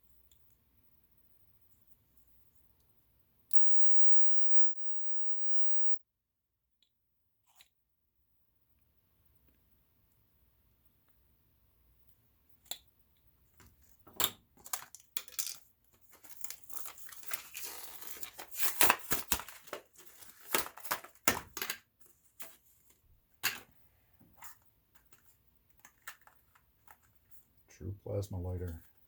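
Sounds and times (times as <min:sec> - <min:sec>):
packaging crinkling and tearing: 0:16.0 - 0:21.3.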